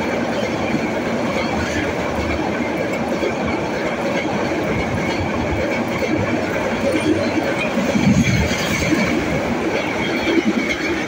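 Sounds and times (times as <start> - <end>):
train wheels running on rails: 0.0 - 11.0.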